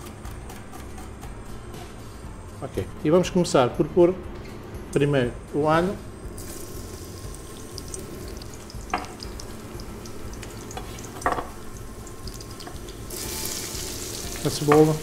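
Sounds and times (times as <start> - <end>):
garlic sizzling in oil: 6.4 - 15.0.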